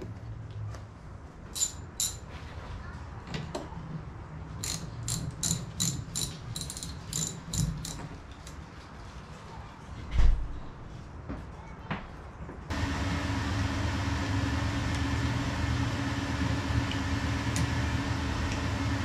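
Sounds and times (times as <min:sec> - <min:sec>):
sharp ringing metallic clicks: 0:01.6 - 0:02.2.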